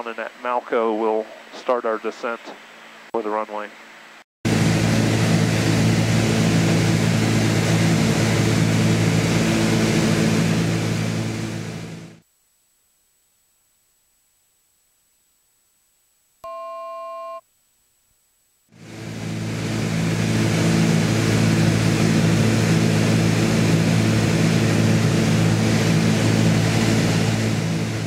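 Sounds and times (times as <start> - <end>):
propeller plane engines droning: 4.5 - 12.2, 18.8 - 28.0.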